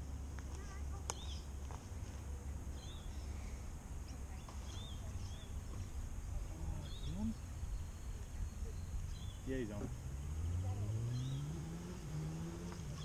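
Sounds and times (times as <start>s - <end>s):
bird chirping: 0.6s - 1.6s, 2.7s - 13.0s.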